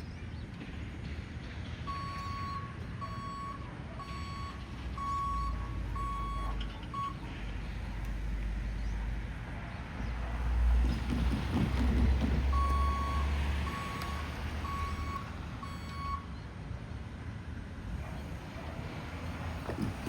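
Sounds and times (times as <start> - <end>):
vehicle engine rumble: 0.0 - 20.0
vehicle backup alarm beeping: 1.9 - 7.4, 11.8 - 16.4.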